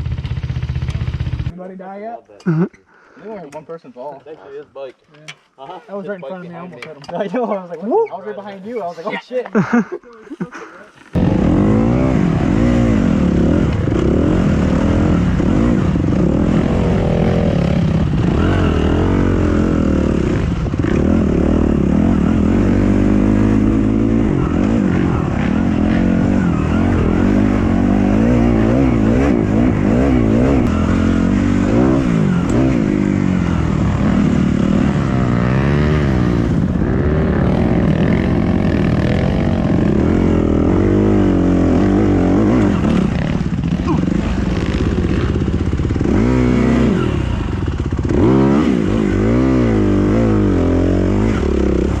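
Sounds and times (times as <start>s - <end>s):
dirt bike engine revving: 11.1s - 52.0s.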